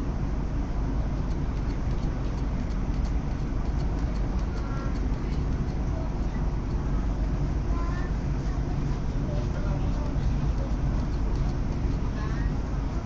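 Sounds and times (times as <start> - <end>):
train interior rumble: 0.0 - 13.0
faint passenger voices: 4.5 - 13.0.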